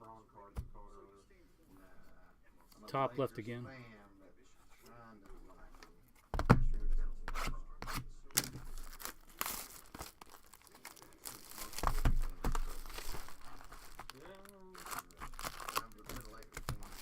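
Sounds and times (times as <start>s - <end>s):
foil wrappers tearing and crinkling: 8.4s - 17.0s.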